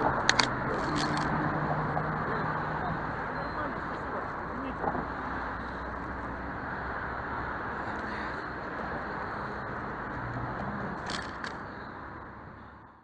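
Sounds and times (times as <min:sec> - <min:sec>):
vehicle road and engine noise: 0:00.0 - 0:13.0.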